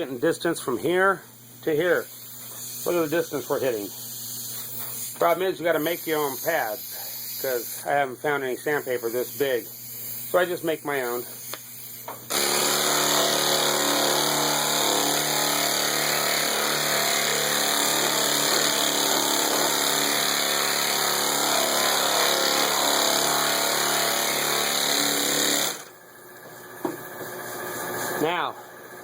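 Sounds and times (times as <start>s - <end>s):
pneumatic sander motor hum: 11.4s - 26.0s.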